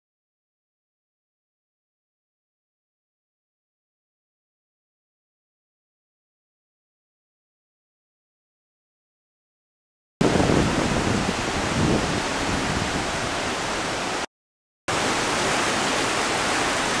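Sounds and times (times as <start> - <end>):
creek rushing: 10.2 - 14.3, 14.9 - 17.0.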